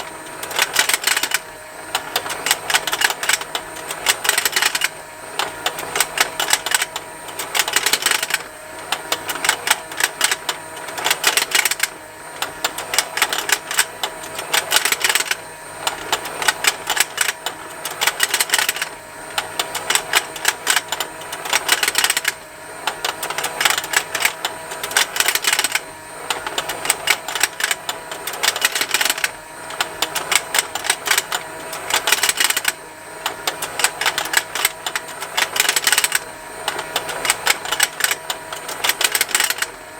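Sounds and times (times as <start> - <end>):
small toy motor humming: 0.0 - 39.9
plastic ticking and snapping: 26.4 - 39.7.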